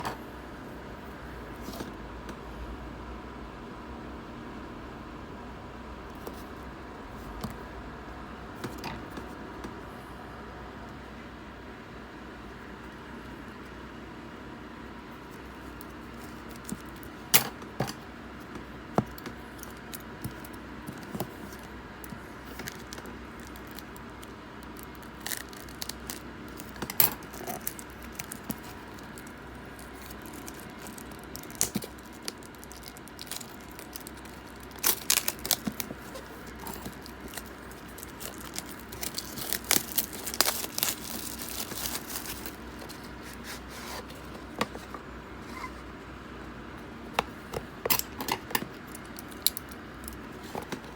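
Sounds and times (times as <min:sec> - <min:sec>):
low background hum: 0:00.0 - 0:50.9
wrappers crinkling and tearing: 0:22.4 - 0:43.6.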